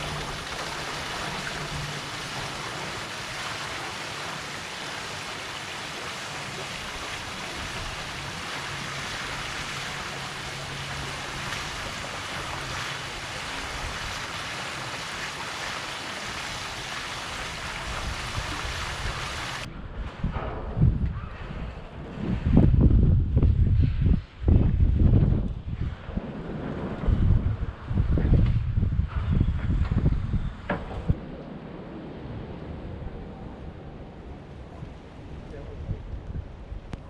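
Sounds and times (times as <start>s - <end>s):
tidal water rushing: 0.0s - 19.7s.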